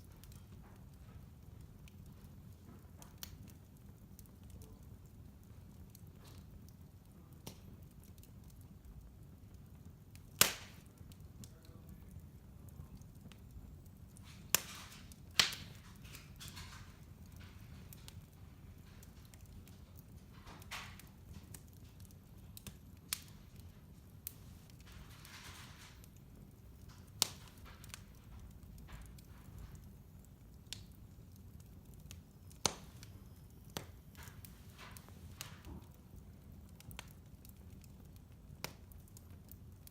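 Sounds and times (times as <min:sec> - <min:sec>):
fire rumbling with crackles: 0:00.0 - 0:39.9
sharp loud pops of fire: 0:10.3 - 0:10.9, 0:14.2 - 0:17.4, 0:20.3 - 0:21.8, 0:32.1 - 0:36.1.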